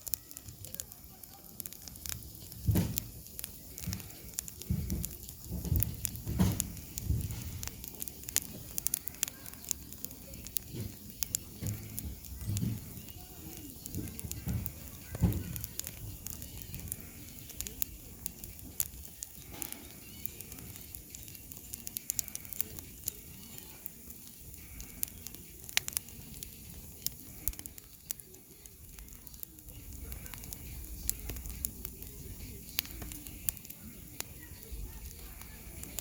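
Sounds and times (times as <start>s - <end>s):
campfire crackling and popping: 0.0s - 36.0s.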